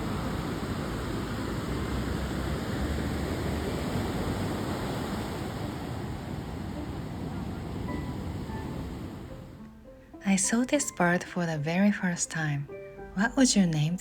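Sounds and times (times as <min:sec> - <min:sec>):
ocean surf washing on beach: 0:00.0 - 0:09.6.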